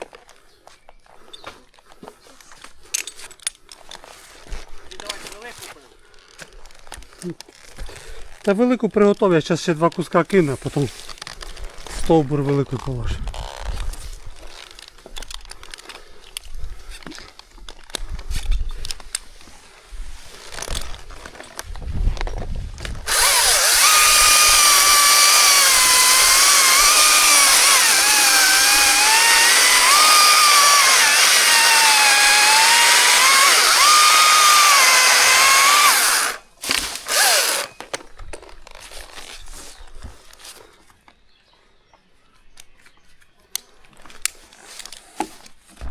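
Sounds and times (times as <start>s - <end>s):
chainsaw cutting wood: 23.0s - 37.8s.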